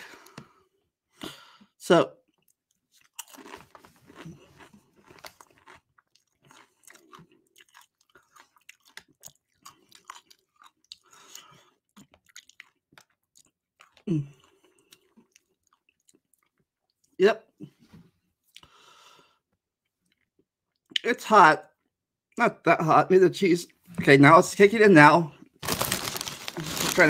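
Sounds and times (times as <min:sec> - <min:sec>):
person chewing: 0:02.3 - 0:17.2, 0:18.4 - 0:18.9, 0:19.8 - 0:21.0, 0:25.6 - 0:27.0.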